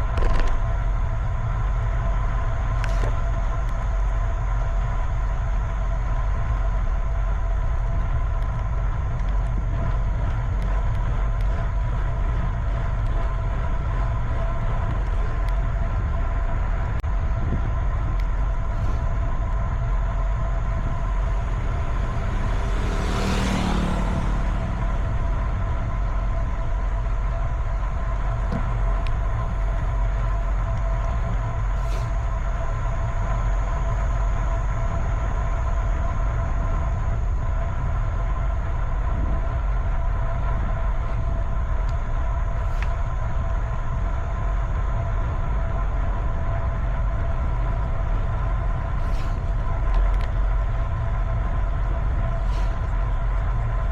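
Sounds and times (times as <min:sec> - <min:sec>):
wind and road noise: 0:00.0 - 0:53.9
vehicle passing: 0:18.5 - 0:37.1.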